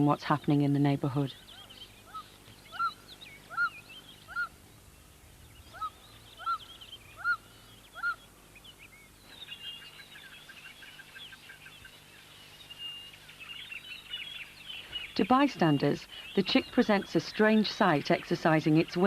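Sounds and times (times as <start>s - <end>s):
small birds twittering: 0.0s - 19.0s.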